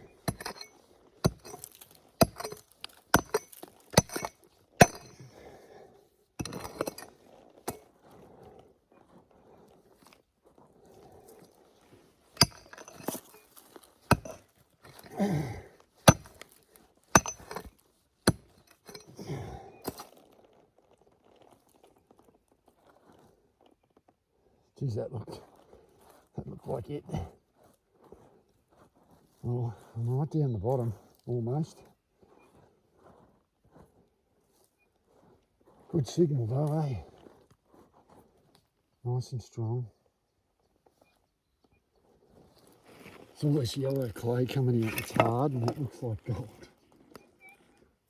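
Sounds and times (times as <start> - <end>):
digging tool scraping clay: 0.0 - 5.4, 6.4 - 8.1, 12.0 - 15.2, 16.0 - 20.2, 42.4 - 47.7
metal tool clinking on stones: 0.1 - 5.2, 6.4 - 7.1, 12.4 - 15.2, 16.0 - 19.2, 43.5 - 46.7.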